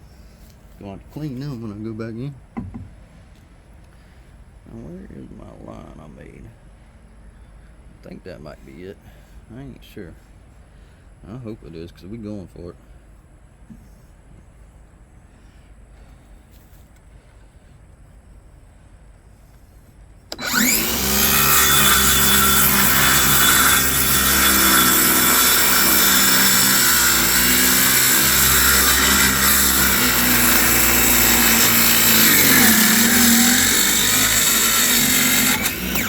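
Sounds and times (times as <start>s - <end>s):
power saw cutting wood: 2.6s - 2.9s, 20.3s - 36.0s.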